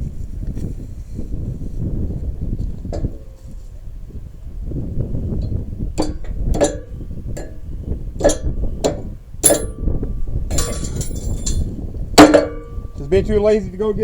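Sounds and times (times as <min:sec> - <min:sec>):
metal parts clinking and clanking: 0:09.4 - 0:09.9, 0:10.5 - 0:12.7.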